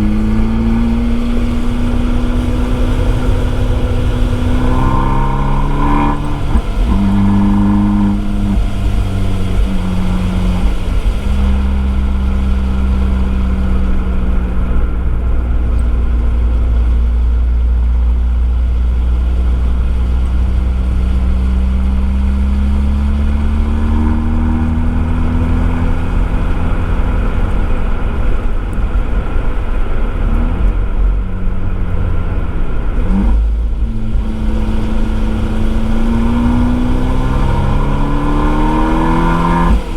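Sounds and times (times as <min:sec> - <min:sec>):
deep exhaust rumble: 0:00.0 - 0:39.9
turbocharged car engine revving: 0:00.0 - 0:39.9.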